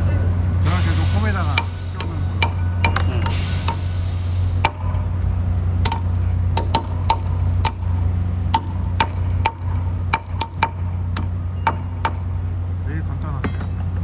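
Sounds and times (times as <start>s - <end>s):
sharp metallic taps: 1.6s - 3.9s, 5.8s - 12.3s.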